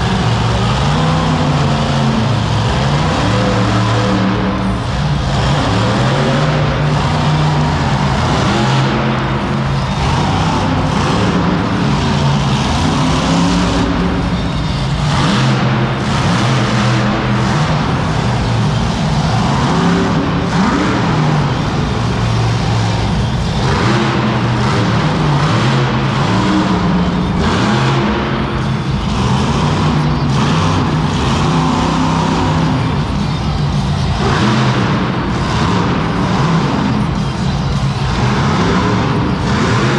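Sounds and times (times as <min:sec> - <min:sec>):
monster truck engine revving: 0:00.0 - 0:39.9.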